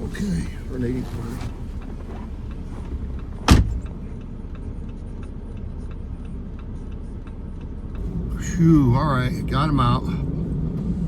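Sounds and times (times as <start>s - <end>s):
vehicle engine rumbling: 0.0s - 11.0s
loud thump: 3.4s - 3.9s.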